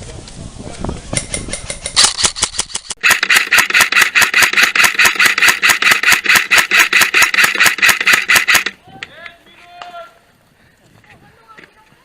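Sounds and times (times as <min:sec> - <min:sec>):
airsoft gun rapid fire: 0:02.0 - 0:08.8.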